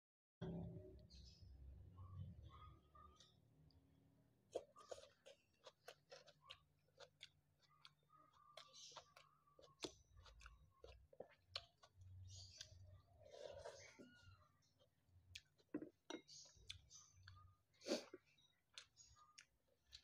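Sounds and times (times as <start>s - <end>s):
person chewing with mouth clicks: 4.5s - 20.0s.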